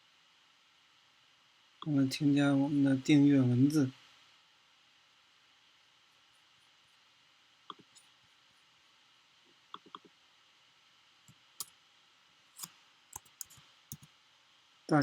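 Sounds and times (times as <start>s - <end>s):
computer mouse and keyboard clicks: 7.7s - 8.1s, 9.8s - 10.1s, 12.6s - 14.1s.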